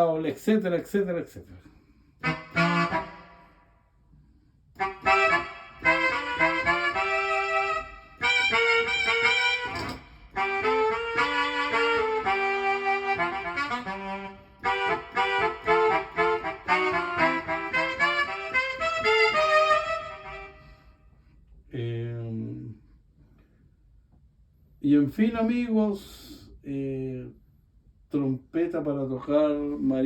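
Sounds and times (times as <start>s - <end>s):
keyboard saxophone melody: 2.2s - 3.7s, 4.8s - 21.0s.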